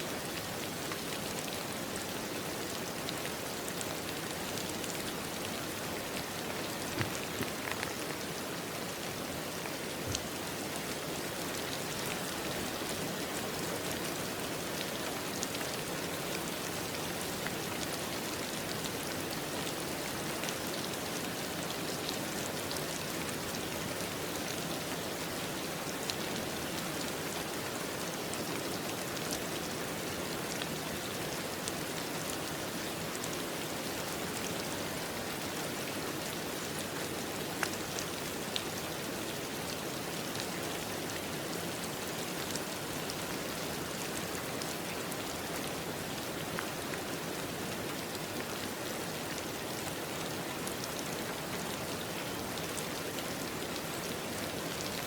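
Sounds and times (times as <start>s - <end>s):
steady rain on a surface: 0.0s - 55.0s.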